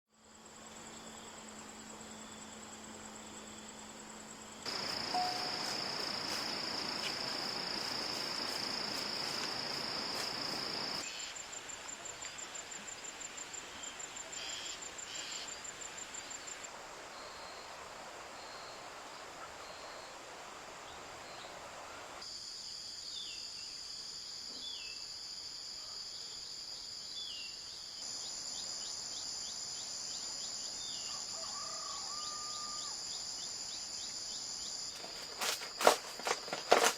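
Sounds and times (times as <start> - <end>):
insects trilling: 0.2 - 17.8, 20.8 - 36.9
even hiss: 4.7 - 16.7.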